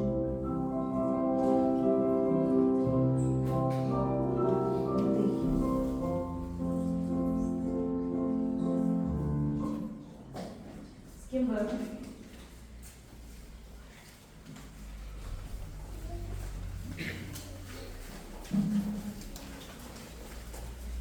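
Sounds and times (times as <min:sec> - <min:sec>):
piano music: 0:00.0 - 0:10.2.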